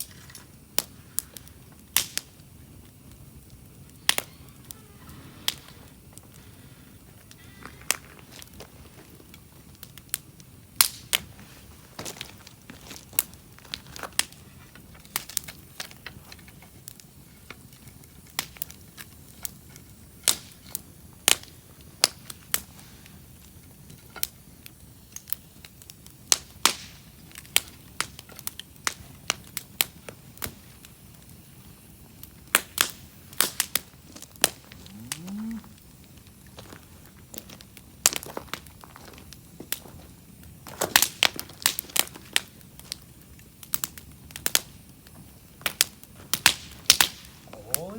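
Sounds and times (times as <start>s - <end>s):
campfire crackling and popping: 0.0s - 47.9s.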